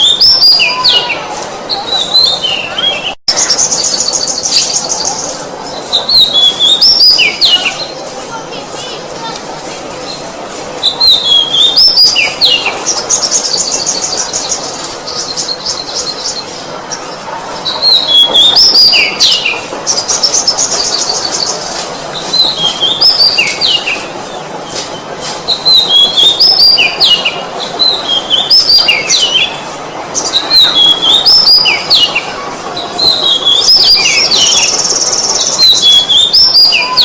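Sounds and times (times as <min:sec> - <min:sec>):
bird singing whistled notes: 0:00.0 - 0:07.9, 0:10.8 - 0:16.4, 0:25.5 - 0:29.6, 0:30.2 - 0:32.2, 0:33.0 - 0:37.0
fast rattling bird trill: 0:00.0 - 0:08.4, 0:10.8 - 0:37.0.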